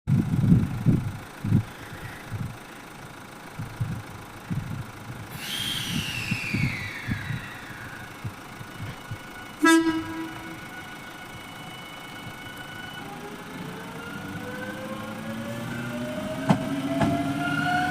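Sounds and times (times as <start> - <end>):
high tone falling in pitch: 5.4 - 16.5
train horn blast: 9.2 - 13.2.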